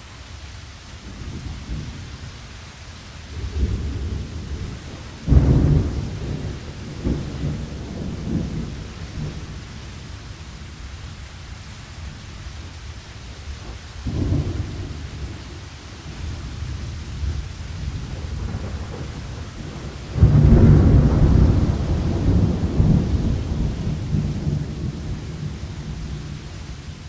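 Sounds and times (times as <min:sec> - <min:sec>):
rain hiss: 0:00.0 - 0:27.0
thunder rumbling: 0:03.3 - 0:10.6, 0:14.0 - 0:27.0.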